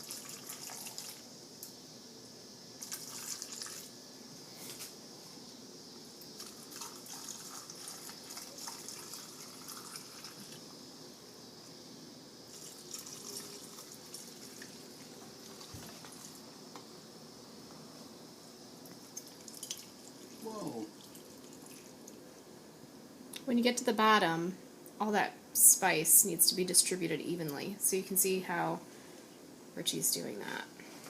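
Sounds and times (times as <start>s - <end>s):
liquid pouring into jars: 2.8s - 3.9s, 6.4s - 10.6s, 12.5s - 16.4s, 19.2s - 22.2s.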